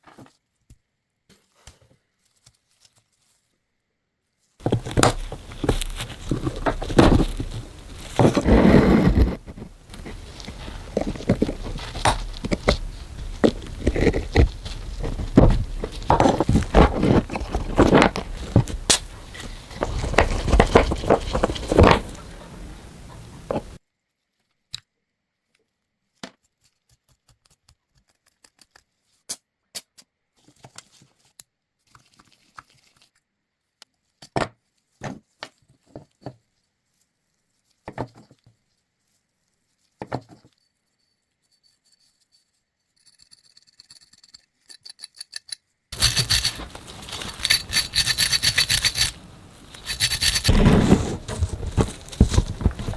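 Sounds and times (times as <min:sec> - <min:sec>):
tools and metal parts knocking: 0:43.1 - 0:49.2, 0:49.8 - 0:50.5
fast faint high ticking: 0:46.0 - 0:49.2, 0:49.8 - 0:50.5
loud scraping on metal: 0:46.0 - 0:52.9.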